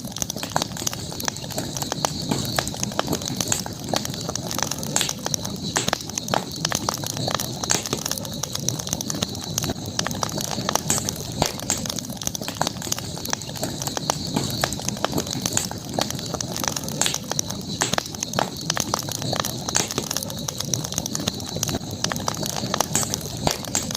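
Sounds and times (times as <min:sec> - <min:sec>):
campfire crackling and popping: 0:00.0 - 0:23.9
flames rushing: 0:00.0 - 0:23.9.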